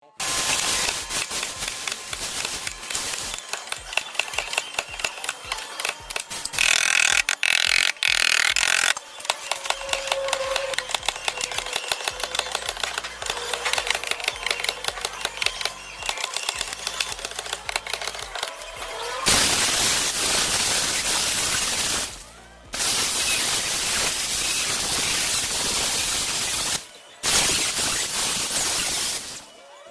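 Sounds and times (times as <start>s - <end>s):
loud steady hiss: 0.2s - 9.0s, 19.3s - 29.5s
tools rasping and scraping metal: 0.5s - 18.6s.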